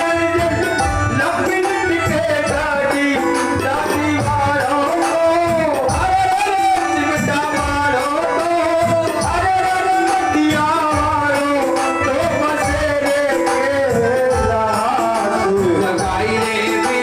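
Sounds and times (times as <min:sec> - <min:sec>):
person singing folk song: 0:00.0 - 0:17.0
steady drum accompaniment: 0:00.0 - 0:17.0.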